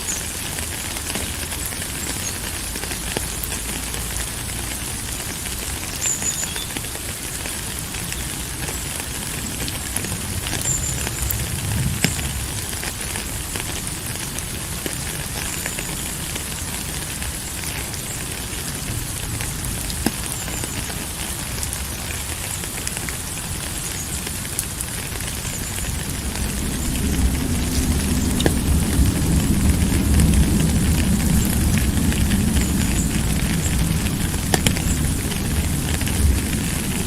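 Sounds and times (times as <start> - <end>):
rain drops pattering: 0.0 - 37.0
low rumble: 25.8 - 37.0.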